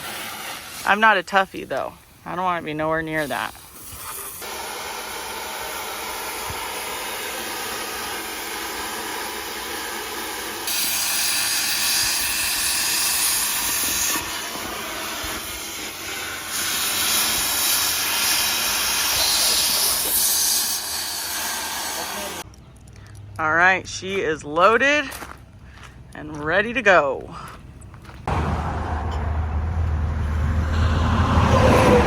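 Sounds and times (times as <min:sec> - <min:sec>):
cutting torch hissing: 0:00.0 - 0:01.2, 0:03.1 - 0:22.5.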